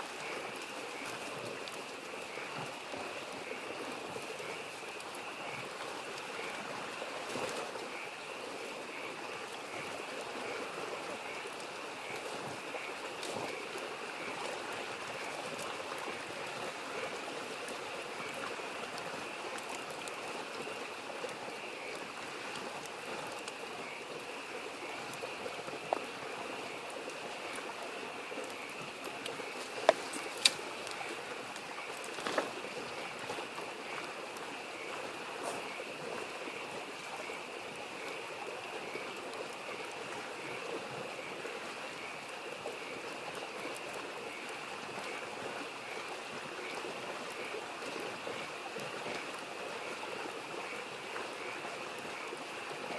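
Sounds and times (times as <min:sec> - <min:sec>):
campfire popping: 0:00.0 - 0:40.8
frogs calling: 0:00.0 - 0:52.9
stream babbling: 0:00.0 - 0:52.9.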